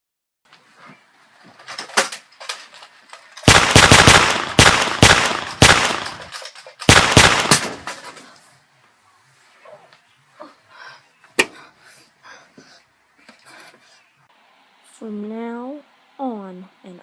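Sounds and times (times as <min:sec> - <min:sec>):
rapid gunfire bursts: 0:03.4 - 0:06.3, 0:06.9 - 0:07.9.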